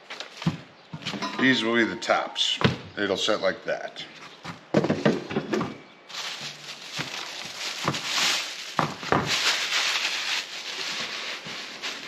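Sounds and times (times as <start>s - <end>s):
knocks and thuds: 4.7s - 5.8s, 8.8s - 9.4s.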